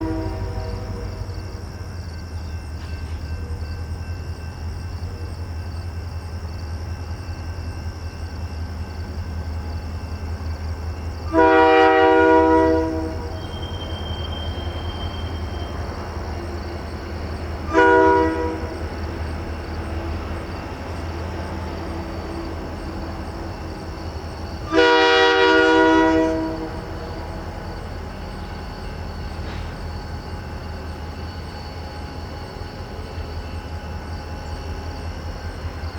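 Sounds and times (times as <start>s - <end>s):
locomotive air horn blasts: 0.0s - 1.2s, 11.3s - 14.0s, 17.6s - 18.8s, 24.6s - 27.3s.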